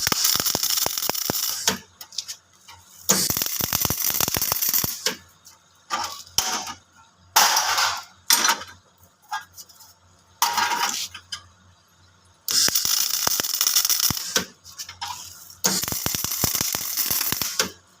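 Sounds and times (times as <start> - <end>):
welder arc crackling: 0.0 - 1.9, 3.0 - 5.2, 12.5 - 17.8.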